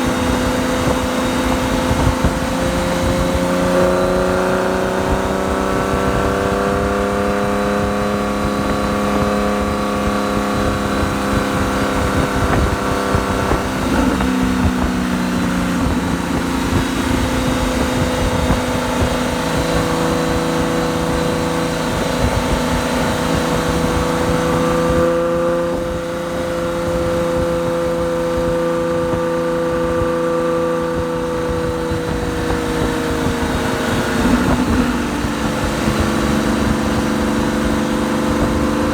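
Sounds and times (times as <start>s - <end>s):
car engine exhaust note: 0.0s - 38.9s
wind and road noise: 0.0s - 38.9s.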